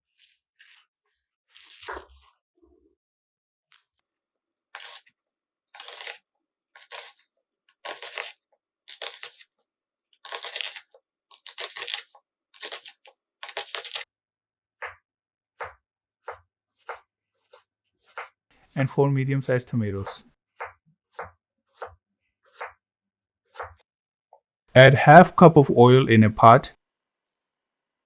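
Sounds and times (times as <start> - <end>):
knife slicing onions: 5.7 - 6.2, 6.8 - 7.2, 7.8 - 9.4, 10.3 - 14.0.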